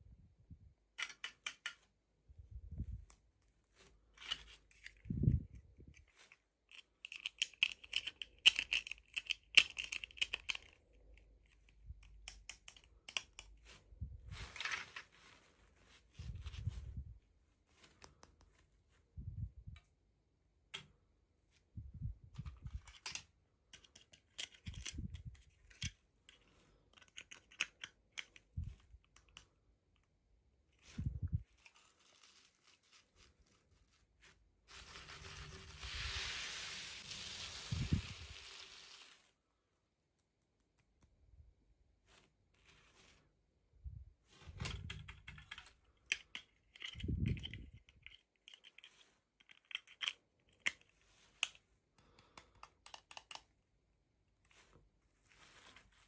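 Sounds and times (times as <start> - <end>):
steady hiss: 34.7 - 39.3.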